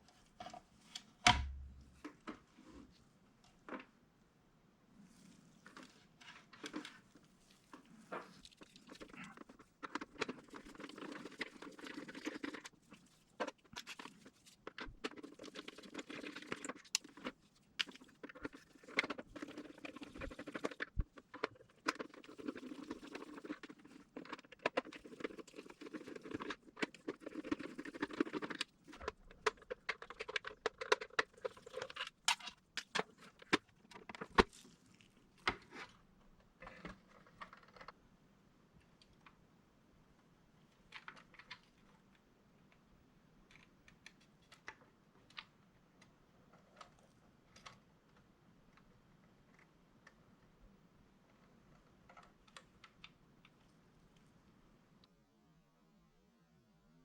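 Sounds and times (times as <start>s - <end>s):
small parts clicking and rattling: 8.2s - 35.6s.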